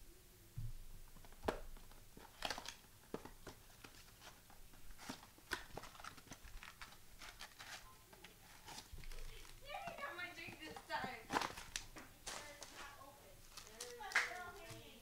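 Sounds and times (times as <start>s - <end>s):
cards sliding and tapping: 1.2s - 9.2s
foil wrappers crinkling: 1.8s - 15.0s.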